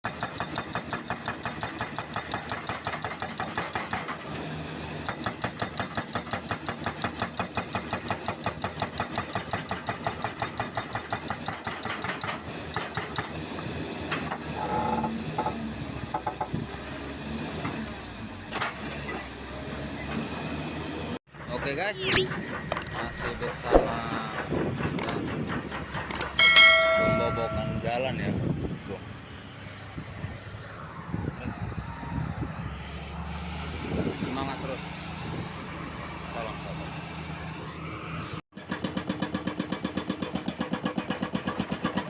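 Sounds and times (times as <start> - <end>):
hydraulic breaker hammering concrete: 0.1 - 4.2, 5.0 - 13.4, 38.6 - 42.0.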